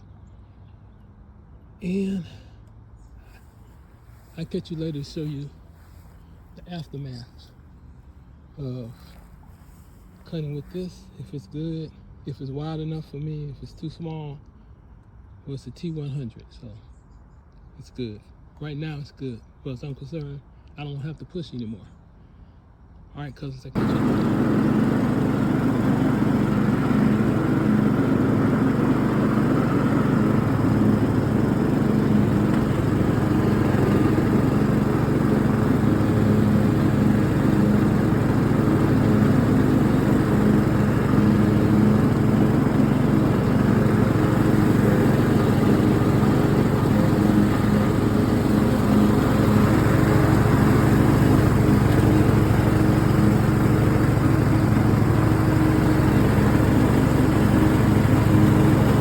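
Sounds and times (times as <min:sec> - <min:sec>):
lawn mower engine humming: 0:03.2 - 0:07.7, 0:23.8 - 0:59.0.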